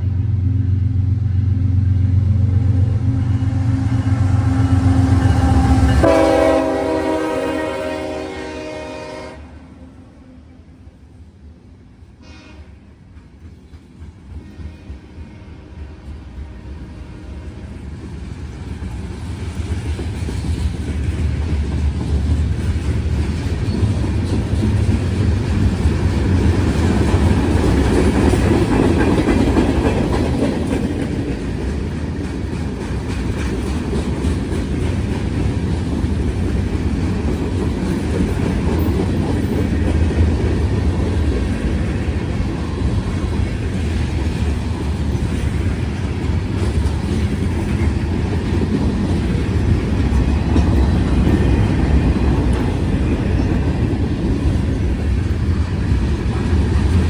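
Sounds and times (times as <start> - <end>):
freight train wheels clattering on rails: 13.0 - 15.1, 17.7 - 57.0.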